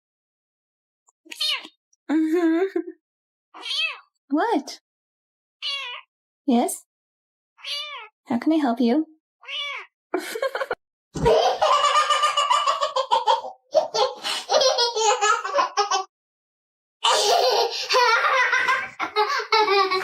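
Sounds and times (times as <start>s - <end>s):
person laughing hard: 10.2s - 15.4s, 17.0s - 20.0s.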